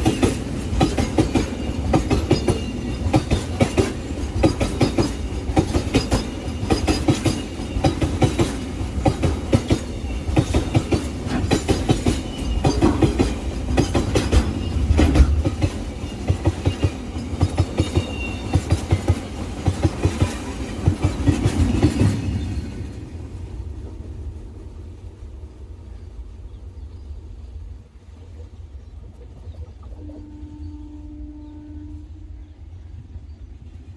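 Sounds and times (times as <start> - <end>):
freight train wheels clattering: 0.0 - 23.1.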